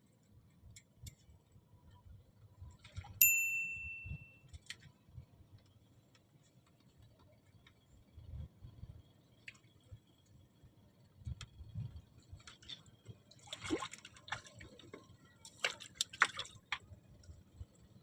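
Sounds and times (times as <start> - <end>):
water splashing and dripping: 12.4 - 16.8.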